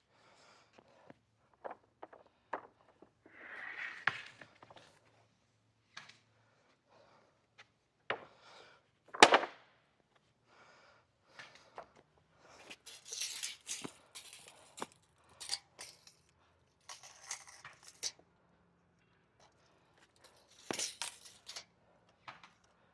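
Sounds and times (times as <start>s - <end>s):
scraping and rustling: 12.6s - 18.1s, 20.1s - 21.6s.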